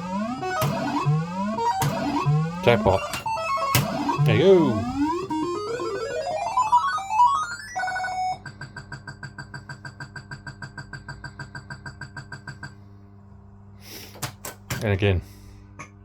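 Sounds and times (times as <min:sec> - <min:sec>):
electronic chord: 0:00.0 - 0:08.3
fruit machine electronic beeps: 0:00.0 - 0:09.1.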